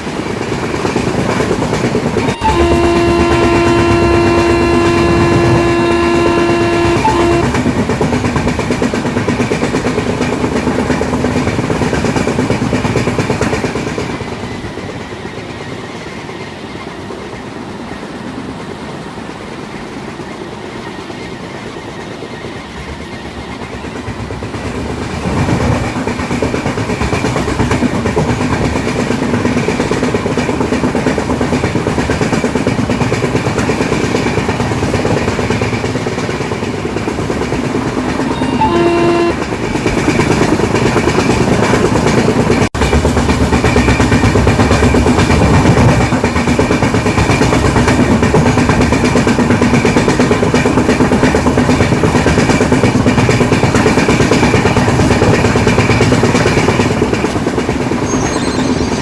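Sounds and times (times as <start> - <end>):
train wheels clattering on rails: 0.0 - 59.0
train horn blast: 2.2 - 7.8, 37.9 - 40.2.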